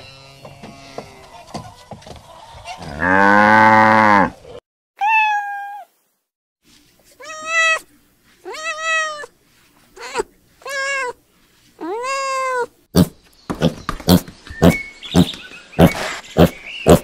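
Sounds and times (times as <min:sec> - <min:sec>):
cow mooing: 0:02.9 - 0:04.3
cat meowing: 0:05.0 - 0:05.9, 0:07.2 - 0:09.3, 0:10.0 - 0:11.2, 0:11.8 - 0:12.7.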